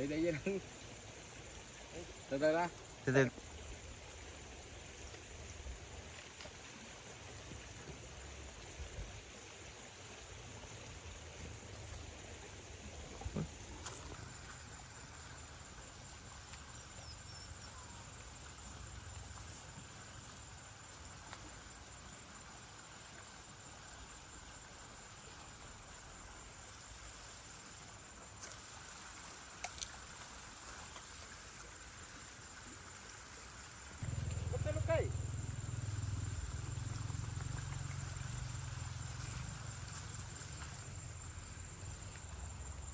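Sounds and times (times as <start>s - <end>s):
insects trilling: 0.0s - 42.9s
low rumble: 34.0s - 41.5s.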